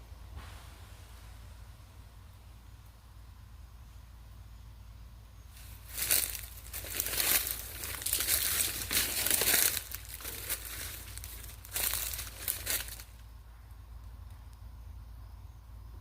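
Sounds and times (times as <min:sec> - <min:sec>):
dry leaves crackling underfoot: 0:05.5 - 0:13.4.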